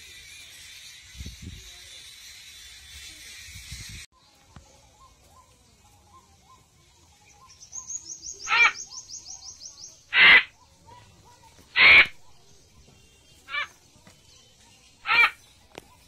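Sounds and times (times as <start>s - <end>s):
bird chirping: 0.0s - 16.0s
harsh bird calls: 7.3s - 16.0s
fast high bird trill: 11.8s - 12.2s.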